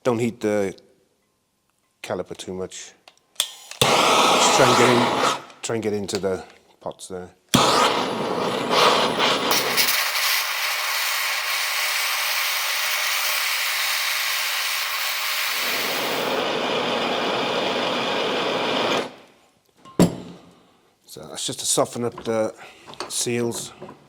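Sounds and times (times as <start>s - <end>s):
heating tool hissing: 3.6s - 5.6s, 7.6s - 19.3s.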